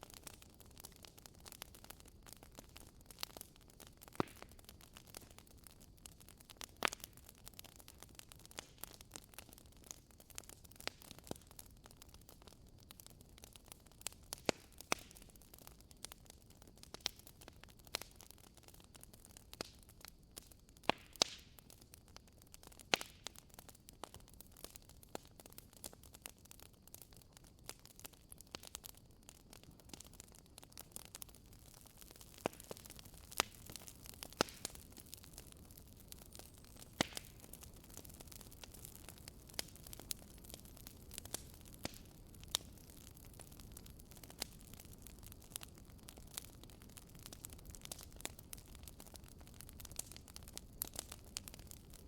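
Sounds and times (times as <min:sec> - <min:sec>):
wood fire crackling: 0:00.0 - 0:52.0
fire hiss: 0:31.1 - 0:49.0
fireplace fire hissing: 0:36.2 - 0:42.8.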